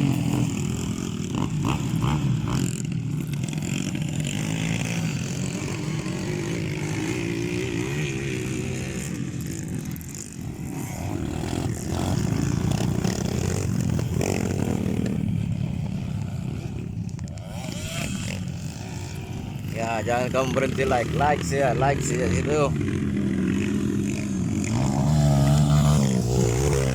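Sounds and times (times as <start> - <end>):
dirt bike engines revving: 0.0 - 26.9.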